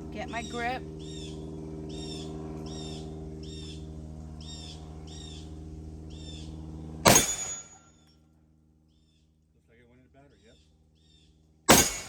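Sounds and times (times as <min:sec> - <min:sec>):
steady low hum: 0:00.0 - 0:12.0
loud pistol shot: 0:07.1 - 0:07.7, 0:11.7 - 0:12.0.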